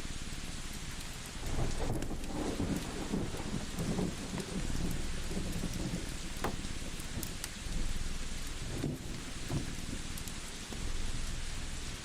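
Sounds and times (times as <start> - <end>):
wood fire crackling: 4.8 - 12.0.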